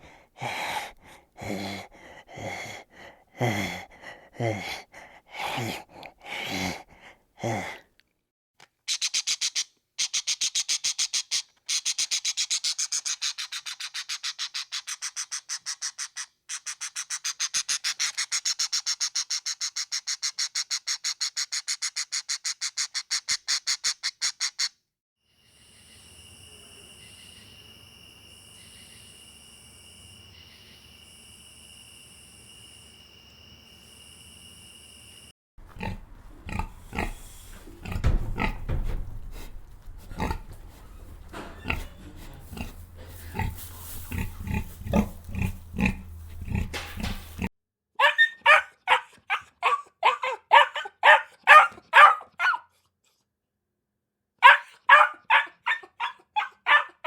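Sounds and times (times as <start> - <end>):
quick repeated animal calls: 8.9 - 24.8
animal grunting calls: 35.6 - 47.5
high-pitched animal buzz: 35.7 - 38.8.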